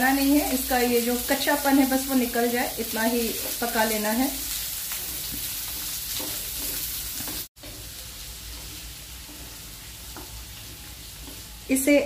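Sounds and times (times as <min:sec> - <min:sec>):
vegetables sizzling in oil: 0:00.0 - 0:12.0
wooden spatula scraping pan: 0:04.8 - 0:12.0.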